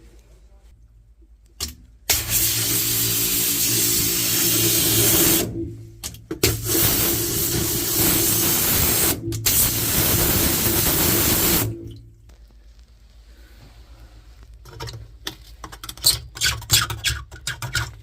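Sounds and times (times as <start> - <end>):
high-pressure water jet spraying: 2.1 - 5.5, 6.5 - 11.8.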